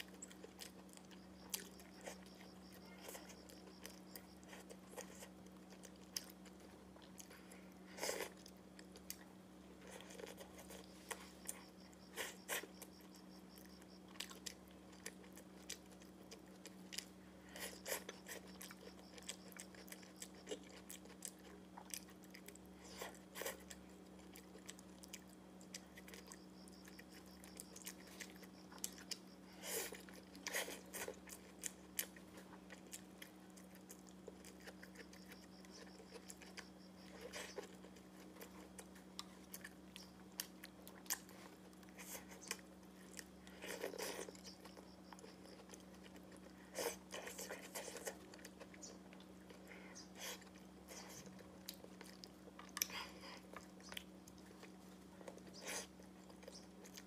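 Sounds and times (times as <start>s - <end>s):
person chewing food: 0.0s - 57.0s.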